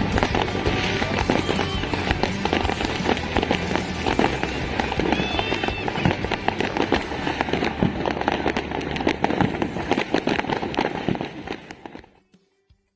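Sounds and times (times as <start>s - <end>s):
fireworks bangs and crackles: 0.0s - 12.2s.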